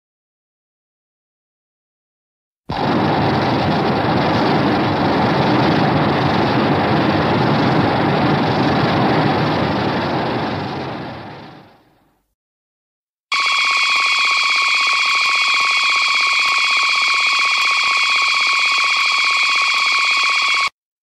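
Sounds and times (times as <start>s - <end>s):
noisy rumble: 2.7s - 12.0s
buzzing electronic alarm tone: 13.3s - 20.7s.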